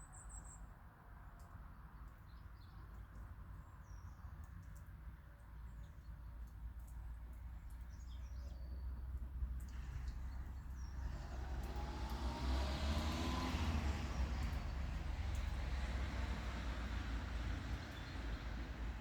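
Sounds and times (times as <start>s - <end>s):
vehicle approaching: 9.5s - 19.0s.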